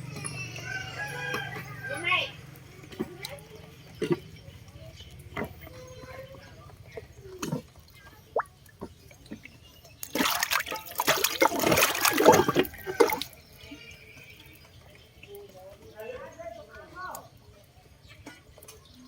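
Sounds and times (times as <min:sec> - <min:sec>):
water drips: 0:01.4 - 0:16.2
water splashing in drain: 0:02.6 - 0:13.6.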